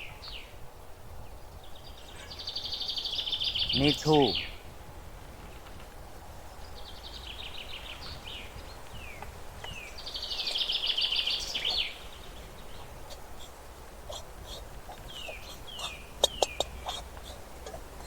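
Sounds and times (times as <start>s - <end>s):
small birds chirping in trills: 0.0s - 18.0s
low background rumble: 4.4s - 18.0s.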